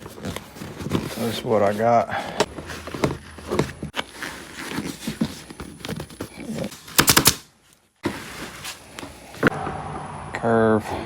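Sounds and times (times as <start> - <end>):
staple gun firing: 7.0 - 7.4.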